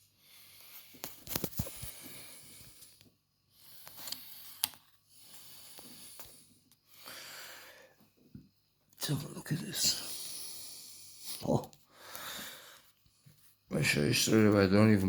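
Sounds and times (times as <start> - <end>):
person breathing: 0.0 - 8.2, 9.9 - 13.0.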